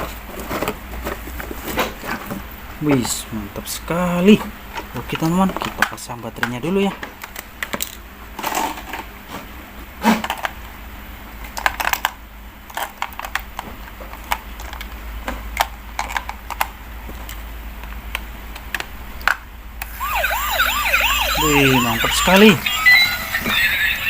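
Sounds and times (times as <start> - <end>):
toy electronic siren wailing: 19.9 - 24.0.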